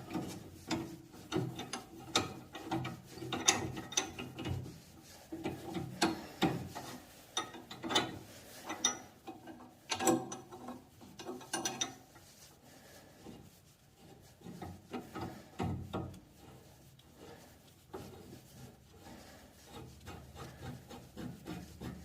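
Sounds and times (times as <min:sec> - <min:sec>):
wrench clicking and scraping on pipe: 0:00.0 - 0:12.3, 0:14.0 - 0:22.0.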